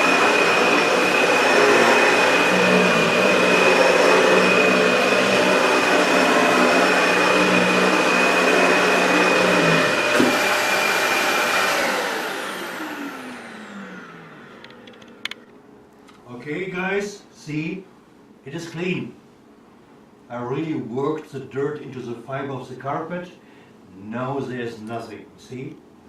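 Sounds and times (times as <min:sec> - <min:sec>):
vacuum cleaner whining: 0:00.0 - 0:15.4.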